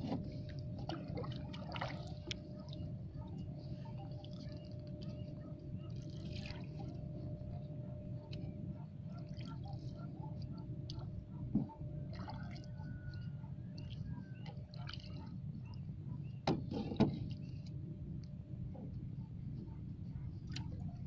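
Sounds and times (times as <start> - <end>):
faint steady hum: 0.0 - 21.0
steady low rumble: 0.0 - 21.0
water lapping and dripping: 0.0 - 21.0.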